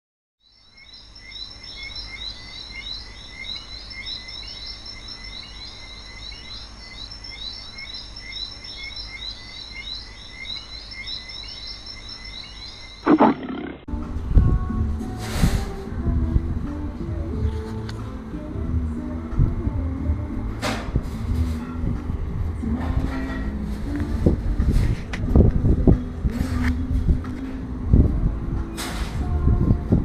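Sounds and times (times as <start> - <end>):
birds chirping: 12.5 - 13.9
loud animal call: 13.1 - 13.9
music: 13.9 - 30.0.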